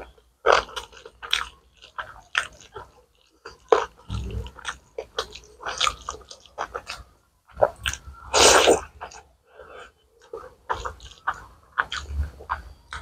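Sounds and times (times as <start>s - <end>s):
chewing with wet mouth clicks: 0.0s - 9.3s, 10.2s - 13.0s.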